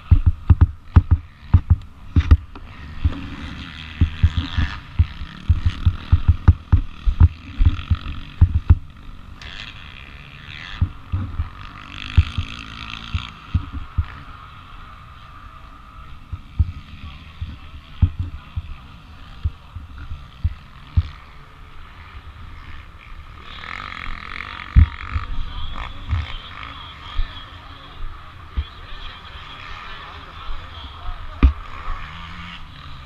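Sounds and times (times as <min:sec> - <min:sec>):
pit bike engine running: 0:00.0 - 0:33.0
wind thumps on microphone: 0:00.1 - 0:03.2, 0:04.0 - 0:08.8, 0:13.1 - 0:14.1, 0:17.4 - 0:18.8.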